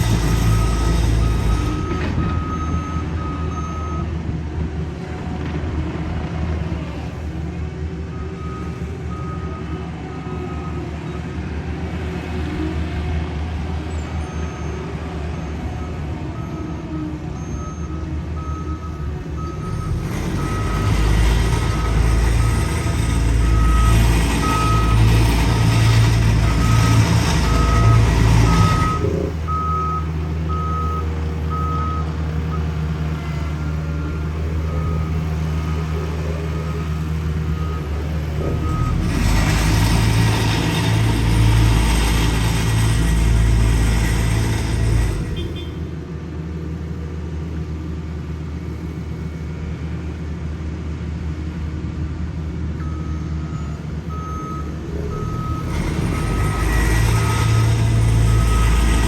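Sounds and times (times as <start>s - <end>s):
reversing alarm beeping: 0.0s - 4.1s, 14.3s - 32.8s, 33.5s - 45.8s, 52.8s - 59.0s
diesel paving machine engine: 0.0s - 59.0s.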